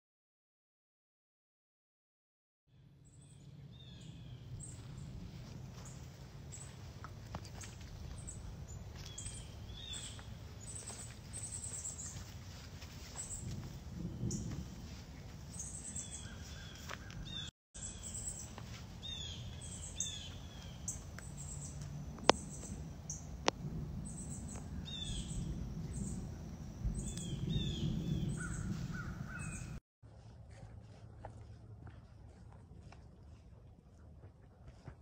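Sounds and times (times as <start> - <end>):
low microphone rumble: 3.1 - 17.5, 19.6 - 29.8
birds harsh repeated calls: 27.0 - 29.8.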